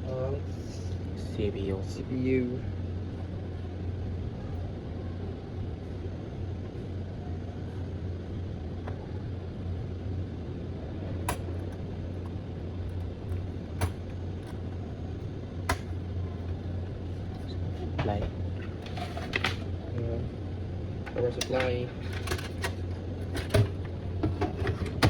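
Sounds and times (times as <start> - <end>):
steady low hum: 0.0 - 25.0
sharp clicks of computer parts: 15.6 - 16.0.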